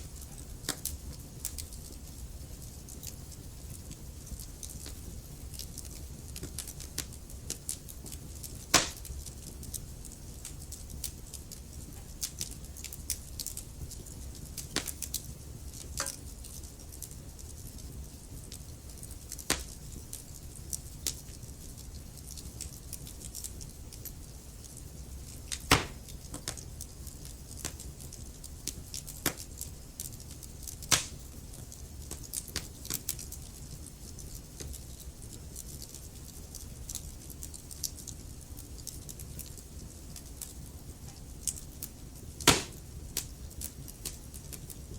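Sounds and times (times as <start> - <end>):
wood fire crackling: 0.0 - 44.9.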